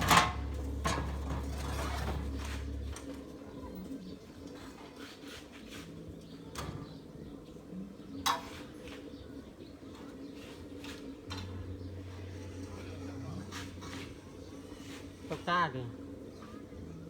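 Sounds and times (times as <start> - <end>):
low hum: 0.0 - 4.1, 11.4 - 15.3.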